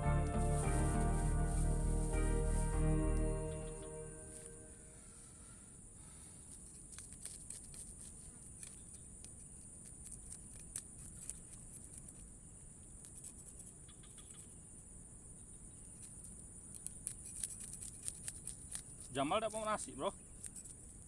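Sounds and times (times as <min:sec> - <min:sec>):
small clicks and ticks: 0:06.5 - 0:12.3, 0:15.9 - 0:19.7
insects droning: 0:07.7 - 0:21.0.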